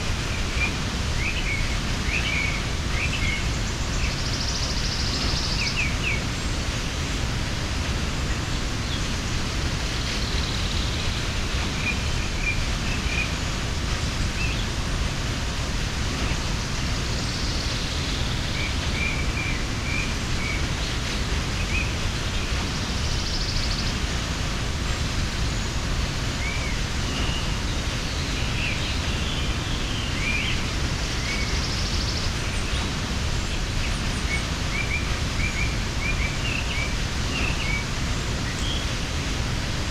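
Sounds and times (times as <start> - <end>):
waterfall rushing: 0.0 - 39.9
small birds chirping: 0.1 - 39.9.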